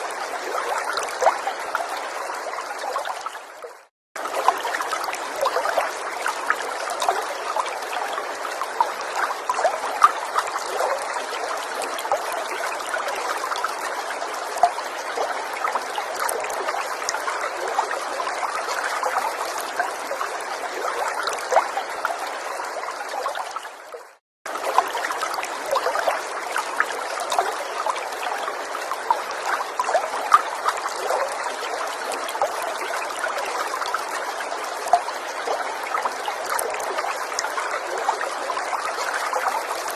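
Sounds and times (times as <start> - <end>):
stream trickling and bubbling: 0.0 - 39.9.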